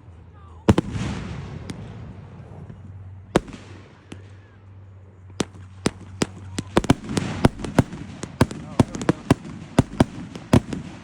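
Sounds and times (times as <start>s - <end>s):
fireworks bang: 0.7s - 2.8s
fireworks cracking and popping: 0.7s - 4.4s, 5.4s - 11.0s.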